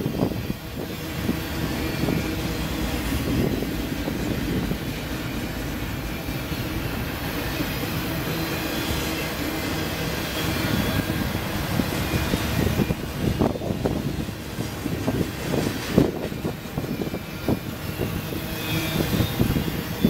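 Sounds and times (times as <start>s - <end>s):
train cars clanking: 0.0s - 20.0s
train wheels rumbling on rails: 0.0s - 20.0s.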